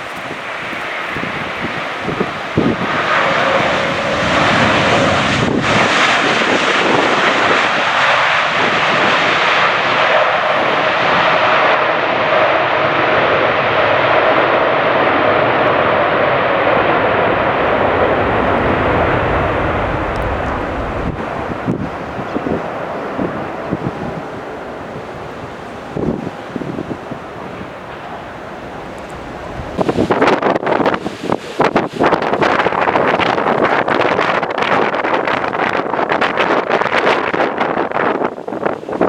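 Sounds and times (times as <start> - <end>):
faint drifting tone: 0.0 - 6.5
airliner engines roaring: 0.0 - 39.0
wind buffeting microphone: 0.0 - 39.0.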